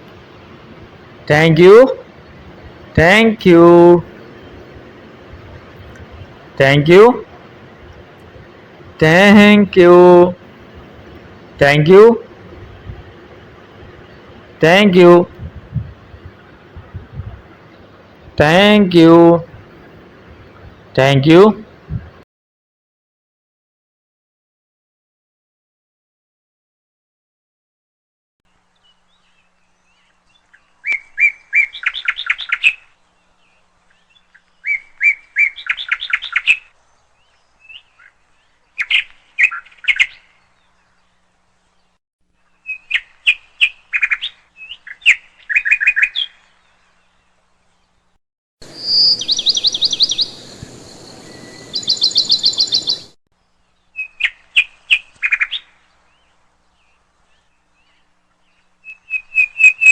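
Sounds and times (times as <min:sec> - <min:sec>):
bird chirping rapidly: 0:28.8 - 0:41.2, 0:42.6 - 0:48.0, 0:48.6 - 0:59.9.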